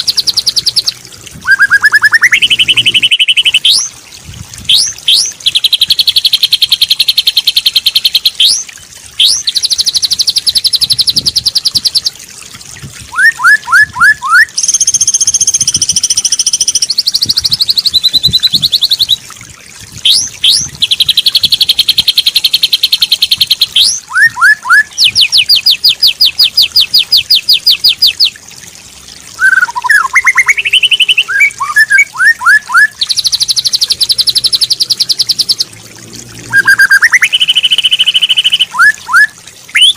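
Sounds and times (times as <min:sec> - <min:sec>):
bird twittering: 0:01.5 - 0:03.9, 0:29.4 - 0:35.7, 0:36.5 - 0:39.9
bird chattering trills: 0:01.6 - 0:03.9.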